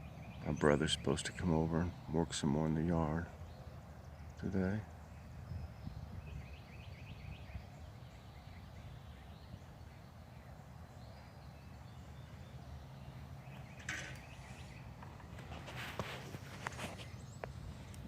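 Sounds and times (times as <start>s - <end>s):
faint songbird chirps: 0.0s - 18.0s
hissing rustle: 13.6s - 18.0s.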